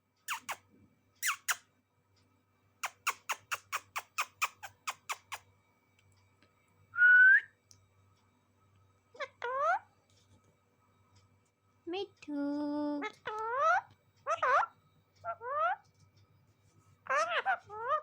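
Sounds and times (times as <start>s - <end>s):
parrot sharp chirps: 0.3s - 0.6s, 1.2s - 1.6s, 2.8s - 5.4s, 17.1s - 18.0s
parrot rising squawk: 17.1s - 18.0s.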